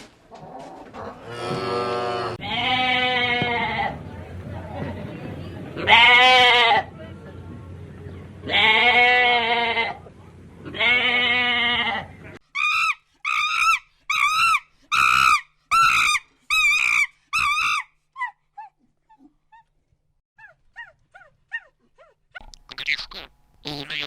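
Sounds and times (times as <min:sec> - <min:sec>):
goat bleating: 0:02.3 - 0:03.9, 0:05.8 - 0:06.9, 0:08.4 - 0:10.0, 0:10.6 - 0:12.1.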